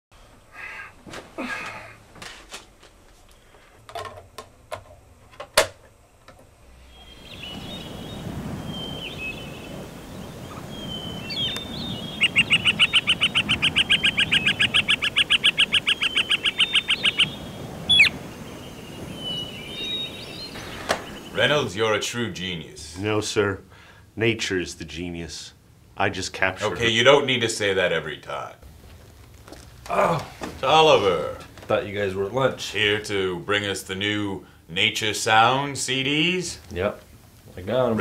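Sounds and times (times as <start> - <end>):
birds chirping: 6.8 - 22.8
rapid bird trill: 6.9 - 21.6
sharp bird call: 6.9 - 21.6.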